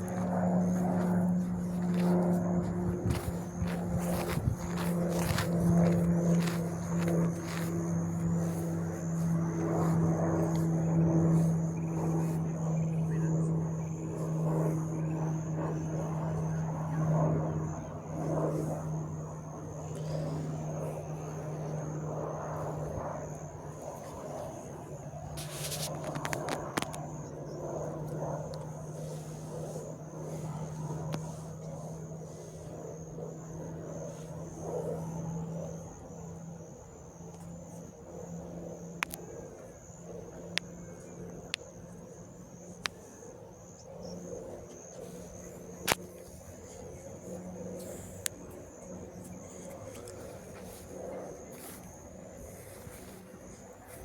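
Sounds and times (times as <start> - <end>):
aircraft engine: 0.0 - 54.0.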